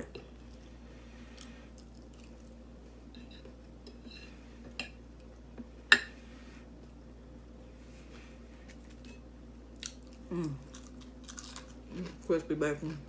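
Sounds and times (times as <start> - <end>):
chewing: 9.8 - 12.3.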